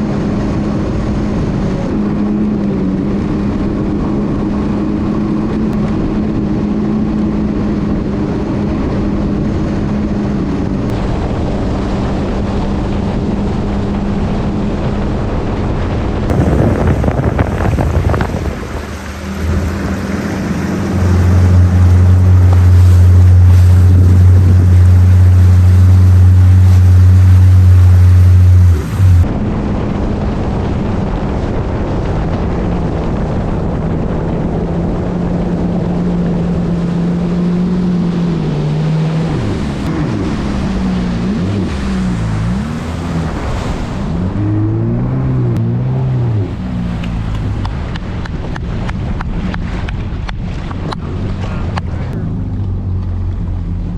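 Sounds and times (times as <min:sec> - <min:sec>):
jet ski engine running: 0:00.0 - 0:53.9
wind: 0:00.0 - 0:53.9
water spray: 0:16.3 - 0:29.2.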